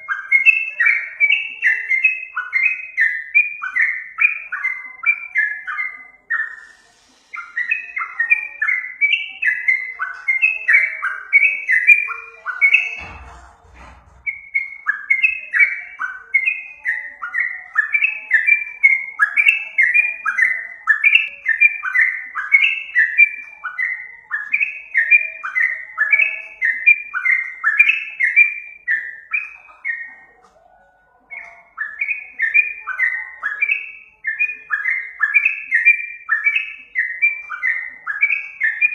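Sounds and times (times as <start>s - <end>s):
low thump: 13.0s - 14.4s.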